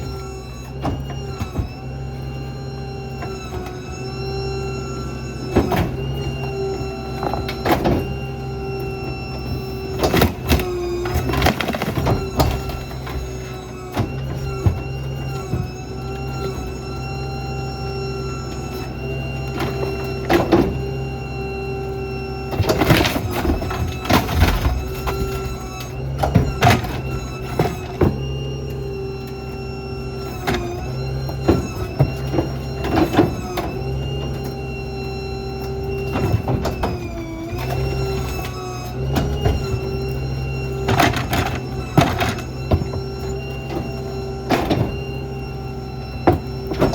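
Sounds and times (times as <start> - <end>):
high hydraulic whine: 0.0 - 46.9
truck engine running: 0.0 - 46.9
debris knocking and crunching: 5.5 - 16.7, 22.5 - 28.7, 30.1 - 46.9.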